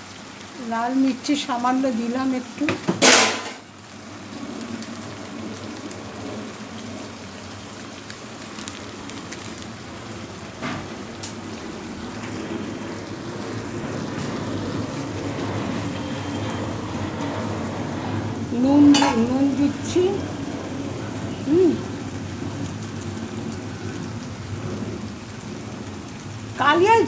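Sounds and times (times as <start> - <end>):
masala sizzling in oil: 0.0 - 27.0.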